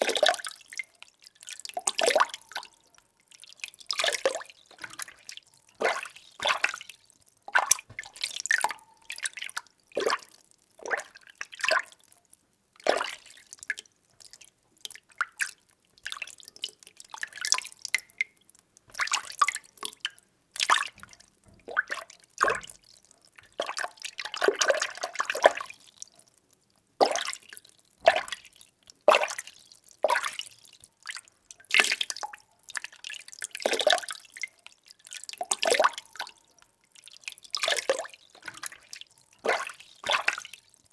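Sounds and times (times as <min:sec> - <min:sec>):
water sloshing and splashing: 0:03.9 - 0:11.9, 0:18.9 - 0:20.0, 0:20.6 - 0:25.8, 0:37.4 - 0:40.8.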